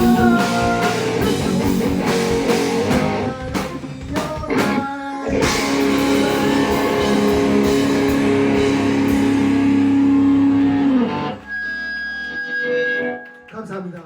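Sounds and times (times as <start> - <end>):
rock band sustained guitar chord: 0.0 - 3.5, 5.4 - 11.6.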